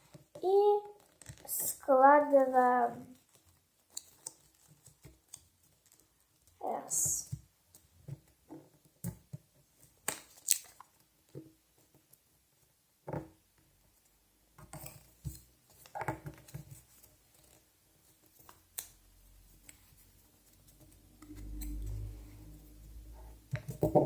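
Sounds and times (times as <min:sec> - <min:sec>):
paper being folded and creased: 0:00.5 - 0:02.4, 0:03.1 - 0:06.8.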